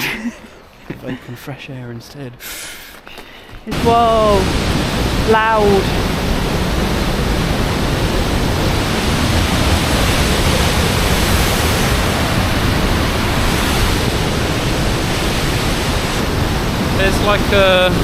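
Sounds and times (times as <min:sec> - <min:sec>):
rush of fast-flowing water: 0:03.7 - 0:18.0.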